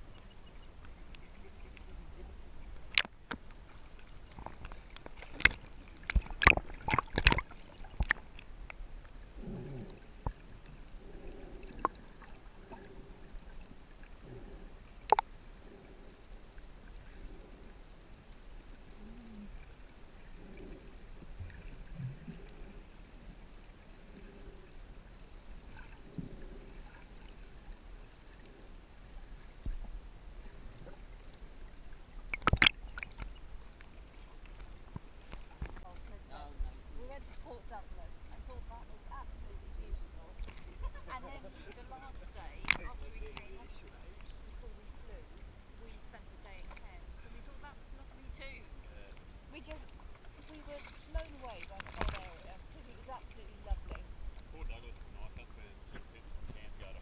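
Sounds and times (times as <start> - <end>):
seawater sloshing and gurgling: 0.0 - 57.0
sharp splashes or knocks: 5.2 - 8.2, 32.3 - 33.2.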